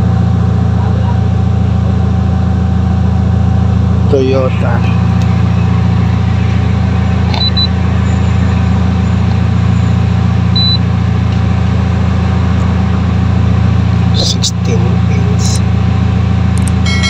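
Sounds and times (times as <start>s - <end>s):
car engine idling: 0.0s - 17.0s
short high beeps: 7.3s - 7.8s, 10.6s - 10.8s, 16.6s - 17.0s.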